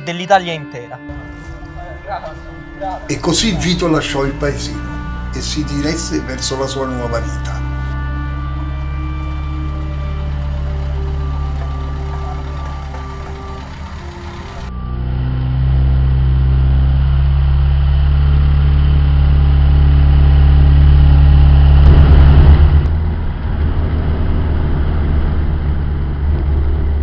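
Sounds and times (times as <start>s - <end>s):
background music: 0.0s - 15.4s
car engine passing by: 1.1s - 27.0s.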